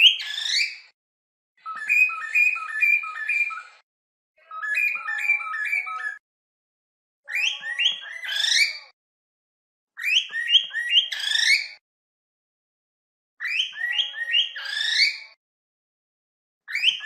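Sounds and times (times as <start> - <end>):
cockatiels whistling and chirping: 0.0 - 0.8, 1.6 - 3.8, 4.5 - 6.2, 7.3 - 8.8, 10.0 - 11.8, 13.4 - 15.2, 16.7 - 17.0.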